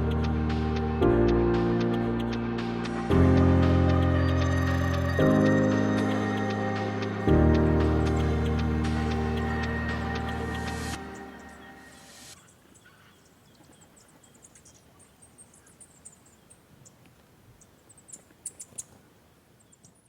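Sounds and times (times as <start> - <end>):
background music: 0.0 - 12.4
small birds chirping: 0.0 - 20.0.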